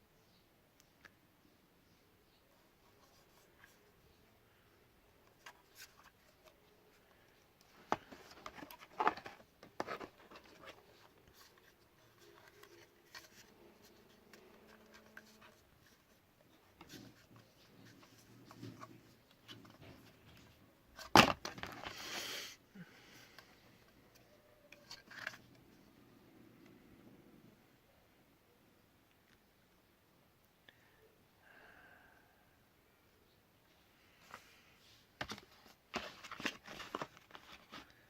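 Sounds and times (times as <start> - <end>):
hands handling packaging: 5.2 - 22.2, 35.2 - 38.0.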